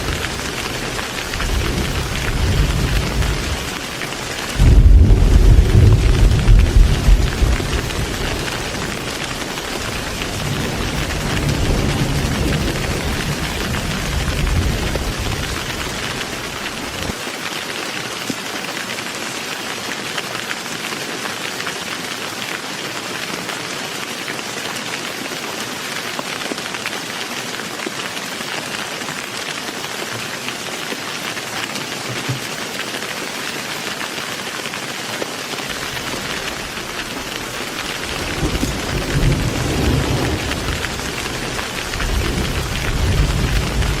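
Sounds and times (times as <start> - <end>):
thunder rumbling: 0.0 - 17.1, 35.7 - 44.0
heavy rain falling: 0.0 - 44.0.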